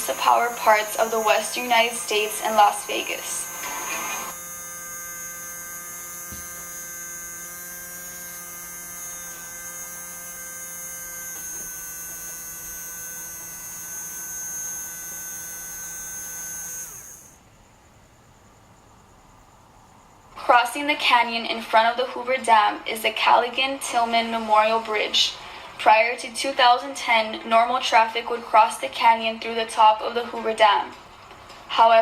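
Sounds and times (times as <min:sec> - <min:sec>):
electrical hum: 0:00.0 - 0:20.5.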